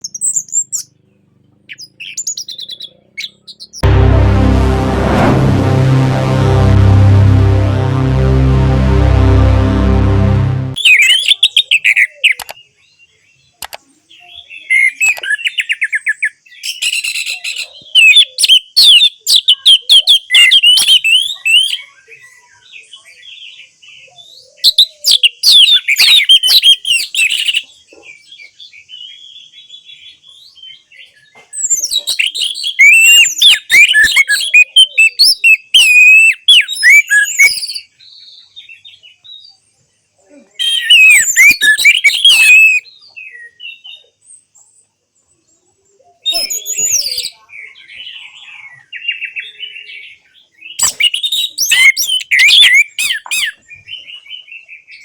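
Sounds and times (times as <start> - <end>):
thrush singing: 3.8 - 10.8.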